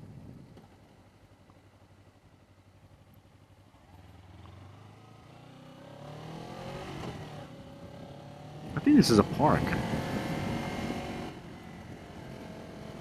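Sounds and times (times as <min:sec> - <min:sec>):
motorcycle engine revving: 0:03.8 - 0:13.0.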